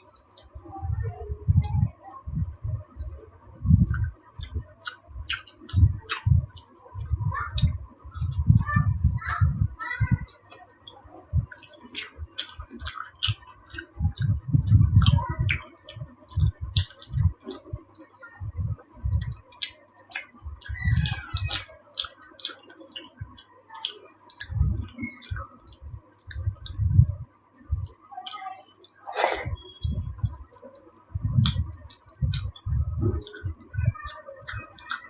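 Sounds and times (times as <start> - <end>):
faint steady hum: 0.0 - 35.0
wet mouth clicks: 3.6 - 8.7, 10.5 - 18.2, 19.1 - 30.4, 31.4 - 35.0
chewing thuds: 31.2 - 35.0.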